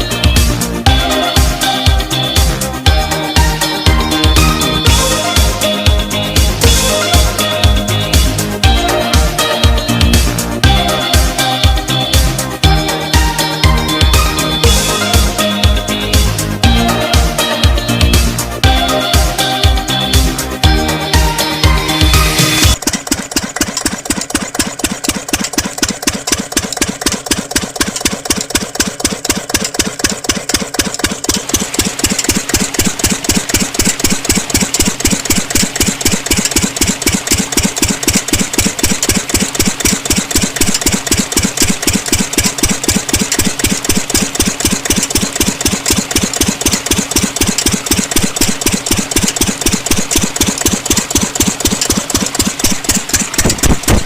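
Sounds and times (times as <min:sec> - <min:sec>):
miniature diesel engine chugging: 0:00.0 - 0:54.0.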